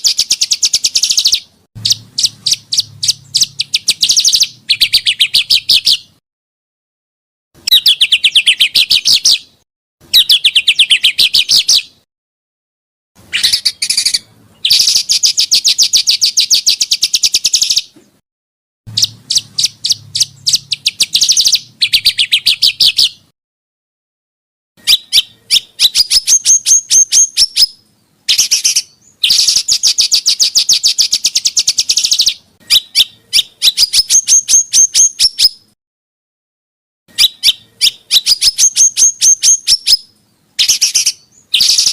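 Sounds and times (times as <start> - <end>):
songbird rapid high chips: 0.0 - 6.1, 13.3 - 17.9, 18.9 - 23.2, 28.3 - 35.5, 40.6 - 41.9.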